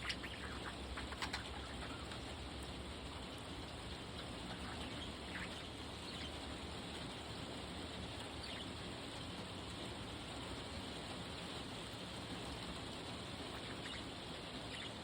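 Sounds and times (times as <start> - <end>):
budgie chick chirps: 0.0 - 2.3, 13.5 - 15.0.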